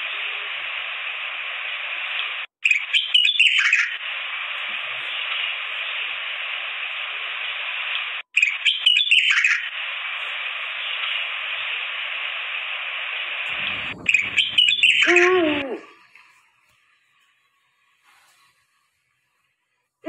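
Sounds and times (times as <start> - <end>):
cockatiels chirping and screeching: 13.5 - 15.4
bird call falling in pitch: 14.0 - 15.8.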